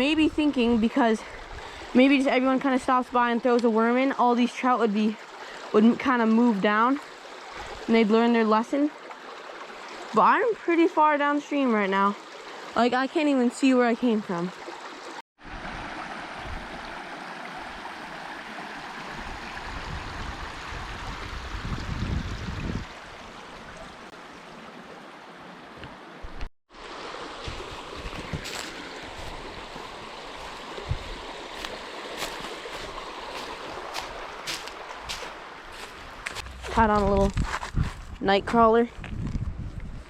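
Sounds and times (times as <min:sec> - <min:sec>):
stream water rushing: 0:00.9 - 0:36.9
low rumble: 0:36.2 - 0:38.2.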